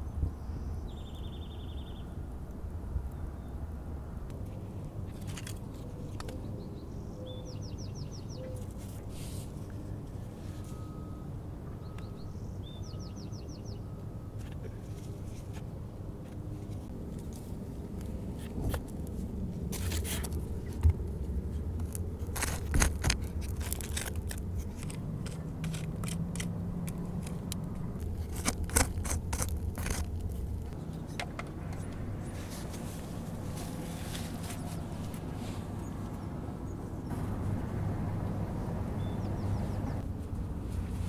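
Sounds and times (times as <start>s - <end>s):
scraping and rustling: 18.2s - 26.2s, 28.0s - 30.8s, 31.7s - 36.0s.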